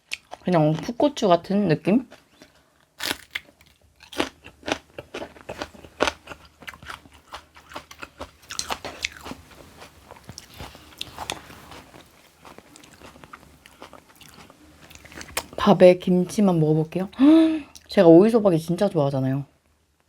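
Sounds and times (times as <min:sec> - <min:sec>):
crunchy chewing of chili pepper: 0:02.1 - 0:15.6.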